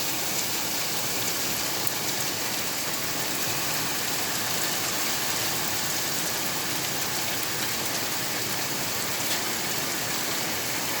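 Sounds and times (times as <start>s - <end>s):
rain hiss: 0.0s - 11.0s
raindrops ticking on surface: 0.0s - 11.0s.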